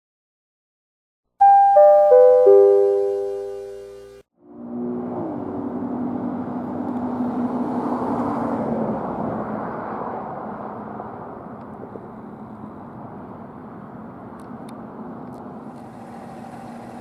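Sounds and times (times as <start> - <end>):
fire engine passing by: 4.4 - 17.0.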